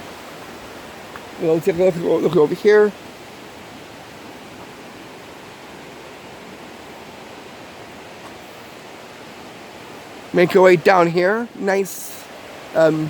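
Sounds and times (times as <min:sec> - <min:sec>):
fast-flowing creek rushing: 0:00.0 - 0:13.0.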